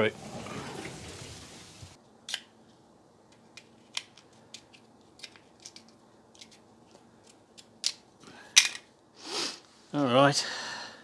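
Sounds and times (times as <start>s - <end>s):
clicks of handling tools and parts: 3.3s - 8.9s.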